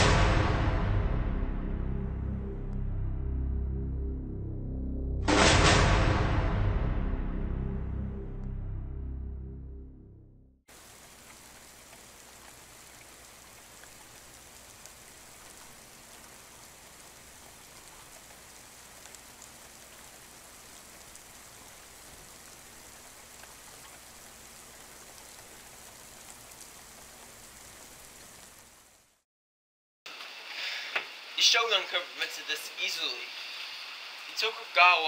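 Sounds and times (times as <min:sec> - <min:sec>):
steady hiss: 0:10.7 - 0:29.2, 0:30.1 - 0:35.0.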